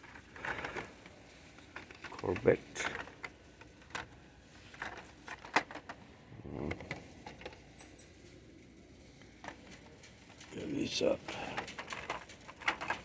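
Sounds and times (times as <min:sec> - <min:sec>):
plastic packaging rustling: 0:00.0 - 0:06.1.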